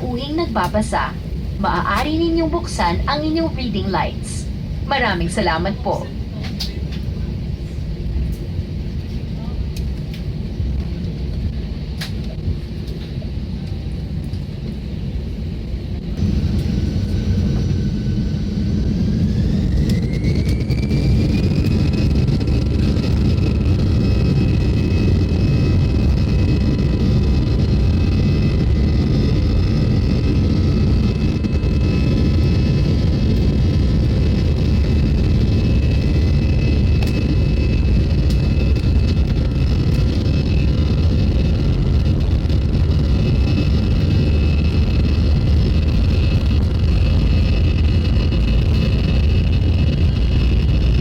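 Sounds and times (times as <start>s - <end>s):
jet engines spooling up: 0.0s - 9.0s, 16.2s - 51.0s
rising engine whine: 15.3s - 51.0s.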